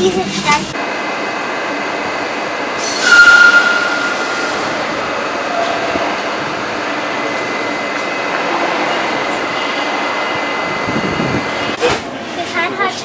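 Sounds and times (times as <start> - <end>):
standing train hum: 0.0 - 13.0
train air hiss with whistle: 2.8 - 4.9.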